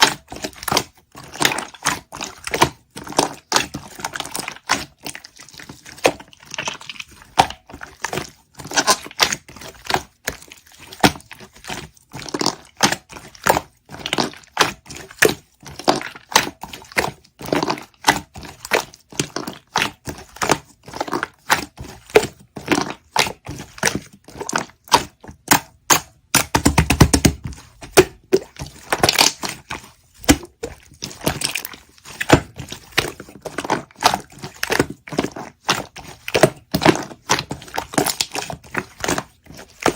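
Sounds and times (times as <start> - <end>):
slime crackling and popping: 24.5 - 39.9.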